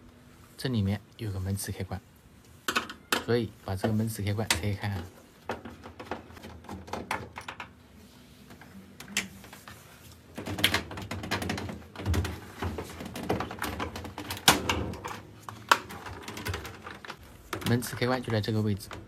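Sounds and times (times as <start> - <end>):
plastic parts clicking and knocking: 2.7 - 7.8, 10.3 - 19.0.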